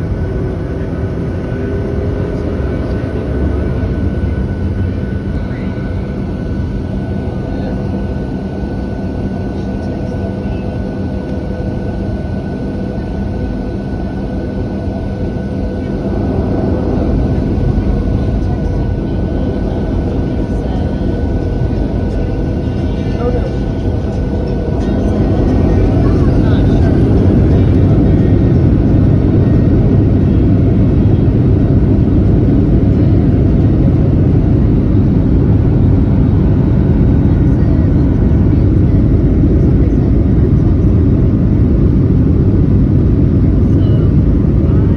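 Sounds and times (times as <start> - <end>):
airplane cabin engine rumble: 0.0 - 44.9
constant engine whine: 0.0 - 44.9.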